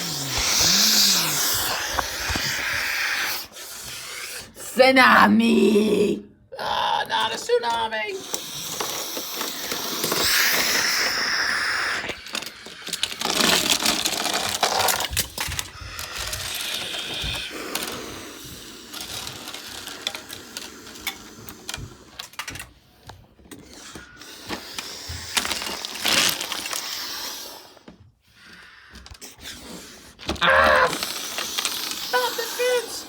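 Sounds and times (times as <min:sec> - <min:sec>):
small hard objects clattering: 0:07.2 - 0:18.0, 0:18.8 - 0:21.2, 0:24.5 - 0:27.0, 0:30.3 - 0:32.8.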